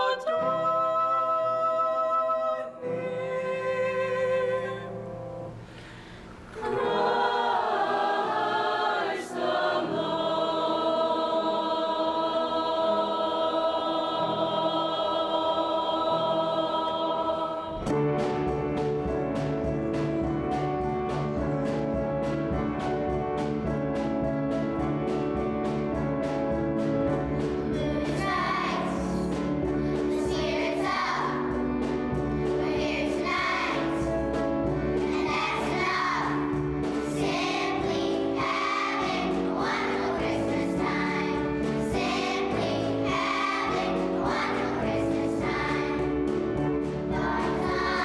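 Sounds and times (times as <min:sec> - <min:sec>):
choir singing: 0:06.6 - 0:18.0, 0:27.8 - 0:29.3, 0:30.0 - 0:31.6, 0:32.5 - 0:34.2, 0:35.0 - 0:48.0.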